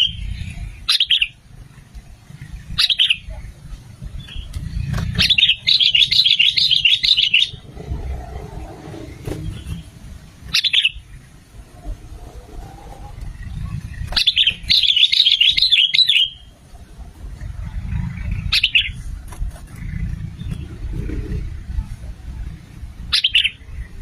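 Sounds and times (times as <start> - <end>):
bird chirping: 0.0 - 16.8, 17.4 - 21.4, 23.0 - 24.0
low rumble: 7.5 - 14.7, 16.6 - 23.1.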